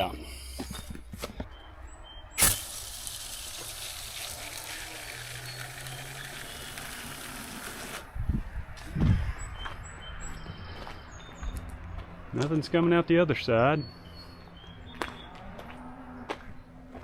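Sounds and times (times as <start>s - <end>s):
spray can click: 2.4s - 7.0s
aerosol spray hissing: 2.4s - 8.0s.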